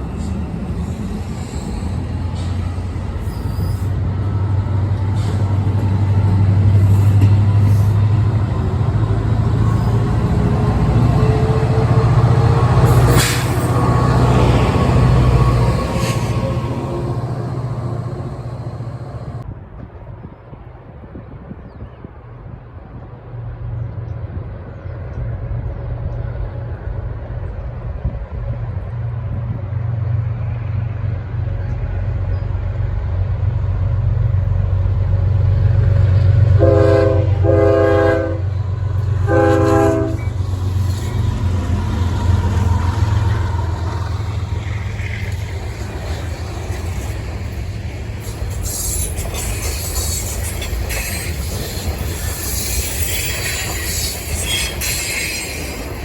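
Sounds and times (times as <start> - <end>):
diesel locomotive engine rumble: 0.0 - 56.0
rail cars clattering: 0.0 - 56.0
locomotive air horn blasts: 36.5 - 40.4.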